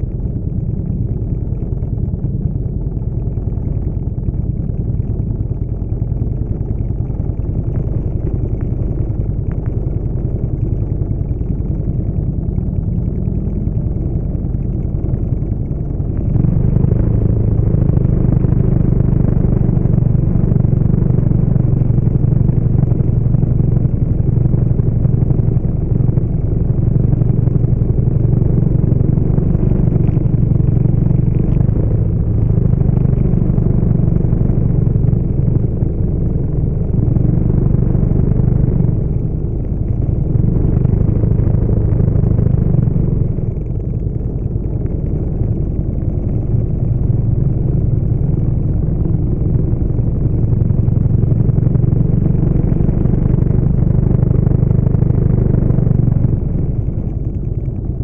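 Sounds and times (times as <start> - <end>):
motorcycle engine rumble: 0.0 - 58.0.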